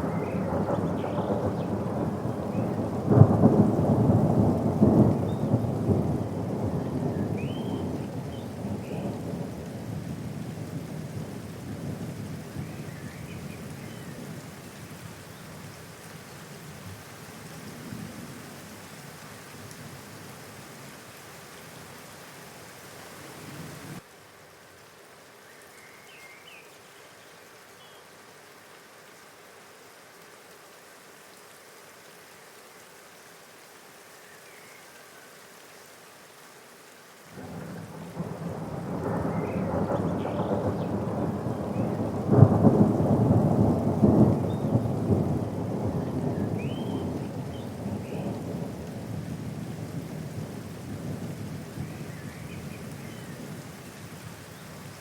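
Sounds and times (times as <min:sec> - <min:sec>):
low roll of thunder: 0:00.0 - 0:14.4, 0:37.4 - 0:53.8
steady rain falling: 0:00.0 - 0:55.0.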